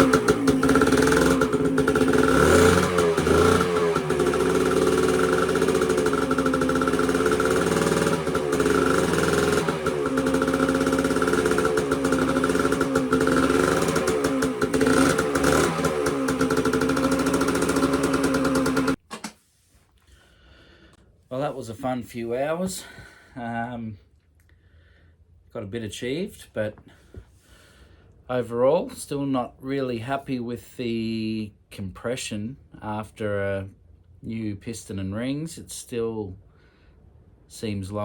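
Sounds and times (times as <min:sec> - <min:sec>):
two-stroke engine revving: 0:00.0 - 0:19.0.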